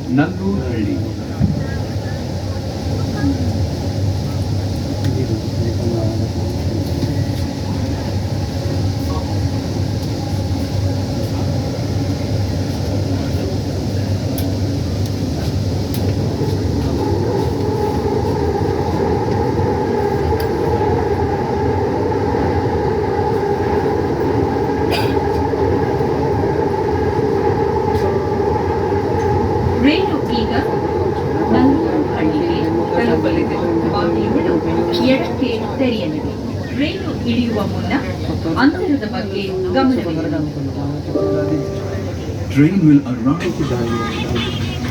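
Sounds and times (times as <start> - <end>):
train rumble: 0.0 - 44.9
humming tone: 41.1 - 42.5.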